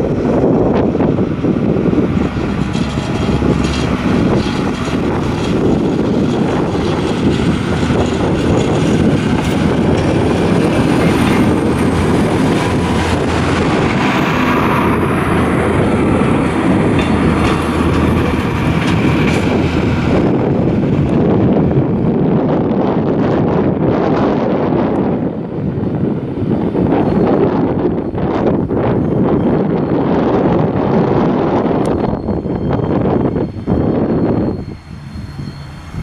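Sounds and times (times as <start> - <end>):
wheels clicking over rail joints: 0.0 - 22.3
railcar engine and wheels rumbling: 0.0 - 36.0.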